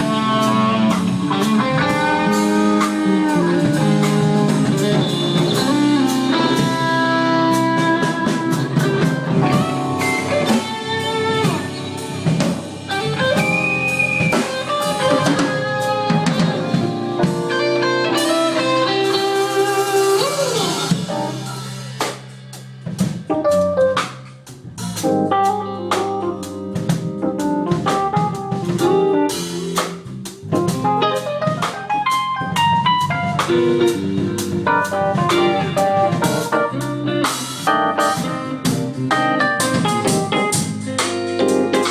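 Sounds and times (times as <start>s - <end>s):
lead guitar with bent notes: 0.0s - 22.0s
blues-rock band playing: 0.0s - 41.9s.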